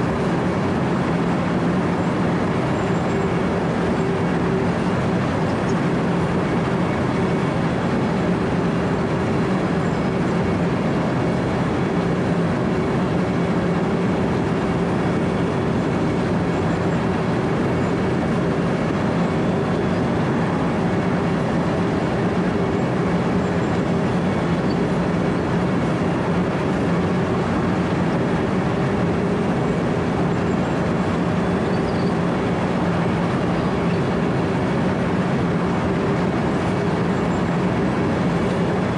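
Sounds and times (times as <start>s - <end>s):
diesel engine droning under load: 0.0s - 38.9s.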